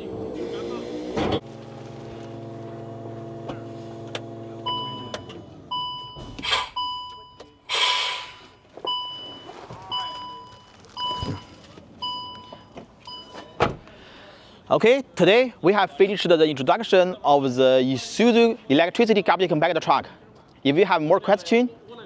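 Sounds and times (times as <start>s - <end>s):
hydraulic pump running: 0.0s - 6.8s
short hisses: 6.3s - 6.8s, 7.7s - 8.6s.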